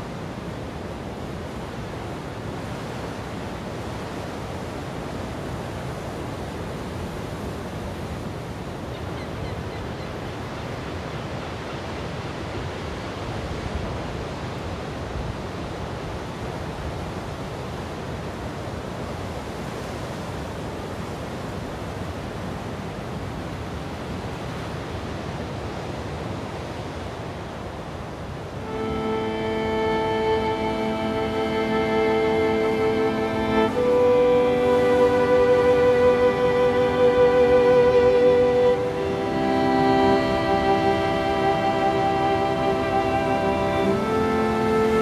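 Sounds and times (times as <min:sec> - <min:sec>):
ocean waves breaking on beach: 0:10.2 - 0:45.0.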